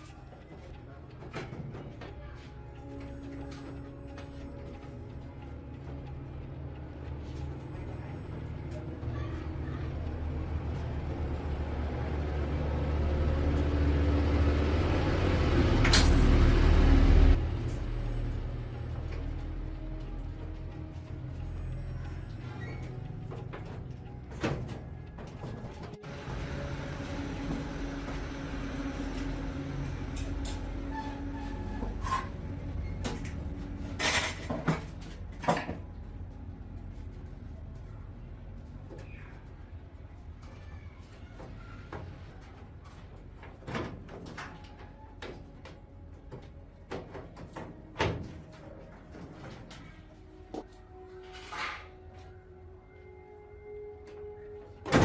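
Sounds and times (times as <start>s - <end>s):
low mechanical hum: 0.0s - 55.0s
knocks and clatters of parts: 0.4s - 5.0s, 22.3s - 26.4s, 29.2s - 36.1s, 41.0s - 52.2s.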